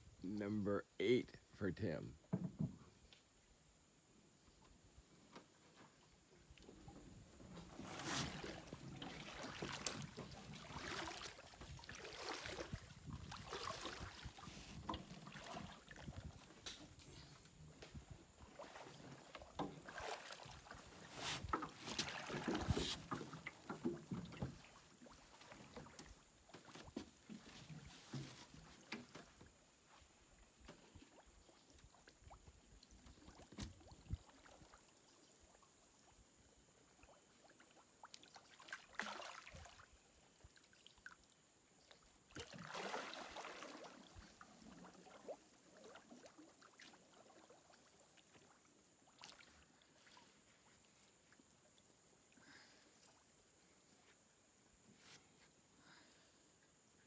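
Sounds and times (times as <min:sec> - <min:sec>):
water splashing around boat: 0:05.4 - 0:35.1, 0:36.9 - 0:41.3, 0:42.1 - 0:51.5.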